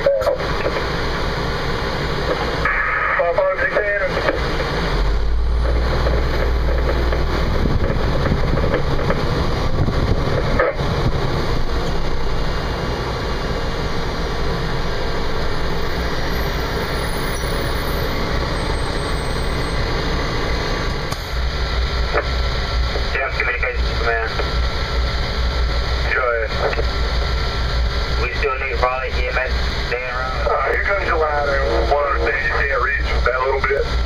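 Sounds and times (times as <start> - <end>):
fire engine running: 0.0 - 34.0.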